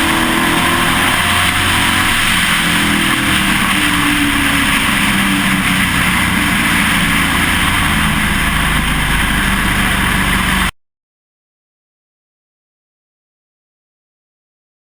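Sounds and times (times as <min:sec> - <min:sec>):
truck engine running: 0:00.0 - 0:10.7
wind and road noise: 0:00.0 - 0:10.7.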